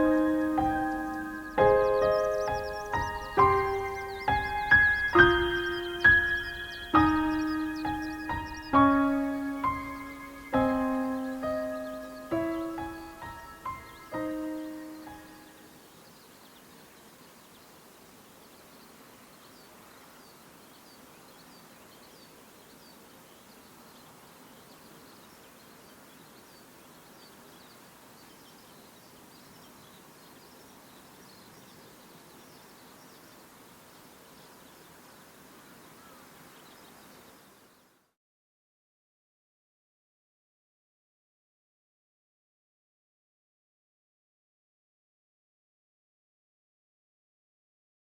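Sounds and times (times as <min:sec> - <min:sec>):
distant bird chirps: 0:00.0 - 0:38.1
steady outdoor hiss: 0:00.0 - 0:38.2.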